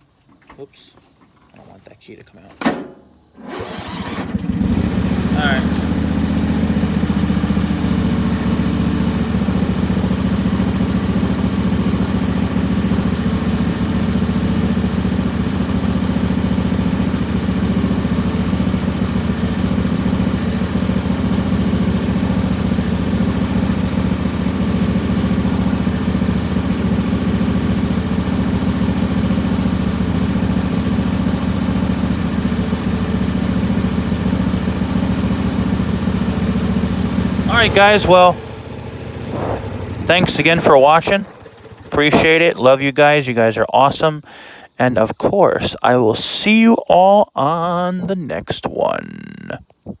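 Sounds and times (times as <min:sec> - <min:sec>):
lawn tractor engine idling: 0:02.6 - 0:44.8, 0:45.4 - 0:49.8.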